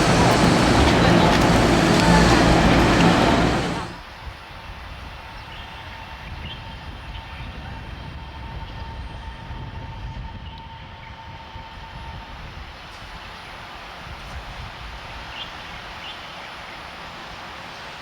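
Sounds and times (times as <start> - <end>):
electric train running: 0.0 - 4.0.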